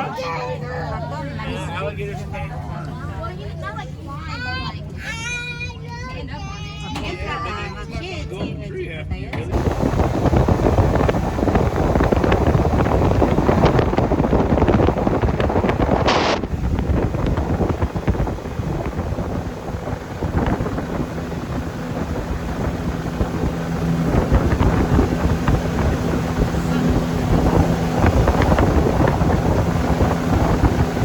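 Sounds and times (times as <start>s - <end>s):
boat motor hum: 9.3s - 31.0s
wind buffeting microphone: 9.4s - 31.0s.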